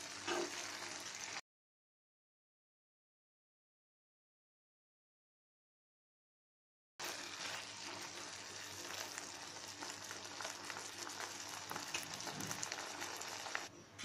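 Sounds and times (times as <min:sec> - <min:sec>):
vegetables sizzling in oil: 0:00.0 - 0:01.4, 0:07.0 - 0:13.7.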